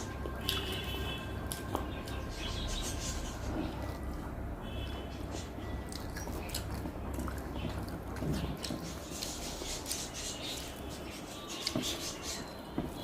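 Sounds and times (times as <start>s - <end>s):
person chewing food: 0.0s - 4.2s, 5.8s - 10.8s
low steady hum: 0.0s - 13.0s.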